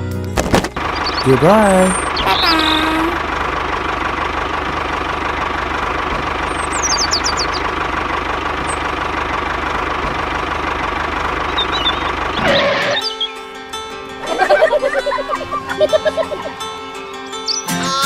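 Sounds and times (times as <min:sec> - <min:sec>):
engine idling with knock: 0:00.2 - 0:13.0.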